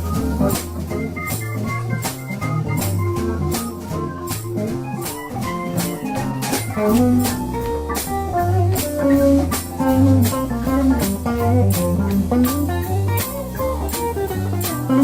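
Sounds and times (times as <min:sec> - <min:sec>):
bass guitar: 0:00.0 - 0:15.0
drums: 0:00.0 - 0:15.0
electric guitar lead: 0:00.0 - 0:15.0.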